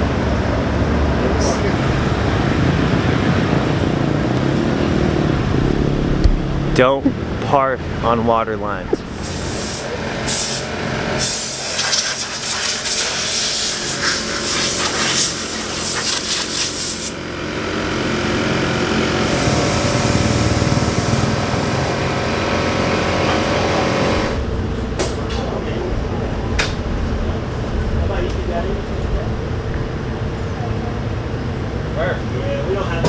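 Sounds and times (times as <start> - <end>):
machinery running: 0.0 - 33.0
loud hiss: 9.0 - 17.2, 19.2 - 22.2.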